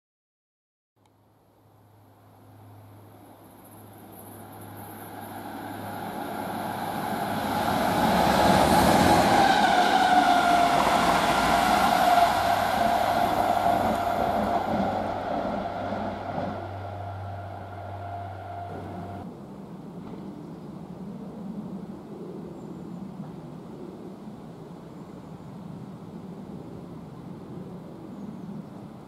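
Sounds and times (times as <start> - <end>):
train rushing past on rails: 2.4 - 19.3
tone dropping in pitch: 10.1 - 19.2.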